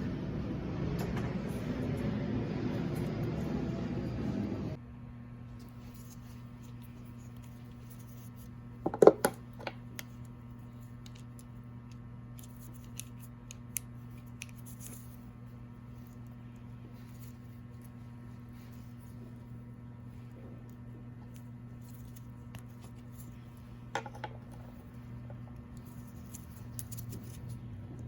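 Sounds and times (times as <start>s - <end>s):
low hum: 0.0s - 8.8s
low electrical hum: 0.0s - 28.0s.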